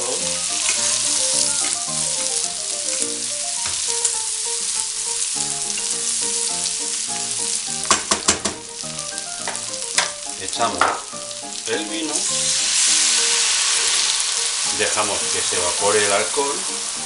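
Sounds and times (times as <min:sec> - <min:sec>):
faint music: 0:00.0 - 0:17.0
meat sizzling in hot oil: 0:00.0 - 0:17.0
spoon knocking against pot: 0:07.8 - 0:08.7.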